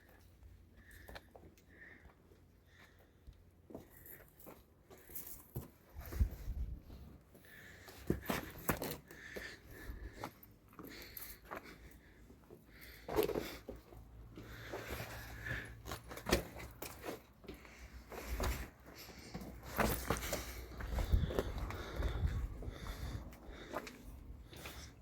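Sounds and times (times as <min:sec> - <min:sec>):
scuffs and rustles: 0:10.0 - 0:25.0.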